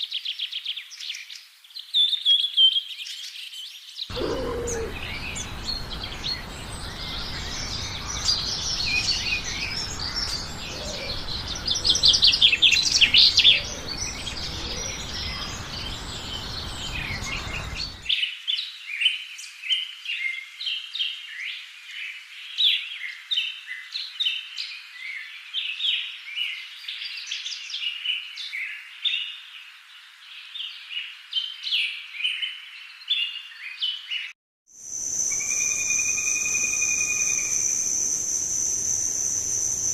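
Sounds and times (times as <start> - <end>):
small birds chirping: 0.1 - 18.2, 34.9 - 39.9
bird trill: 4.1 - 18.1, 34.9 - 39.9.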